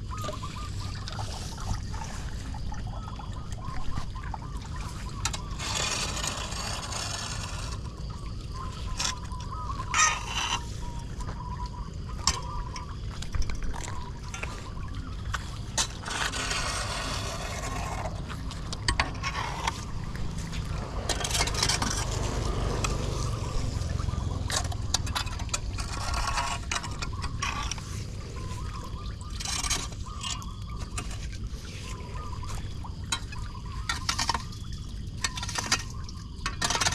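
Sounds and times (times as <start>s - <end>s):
floodwater gurgling into drain: 0.0s - 36.9s
water splashing surges: 13.8s - 29.4s.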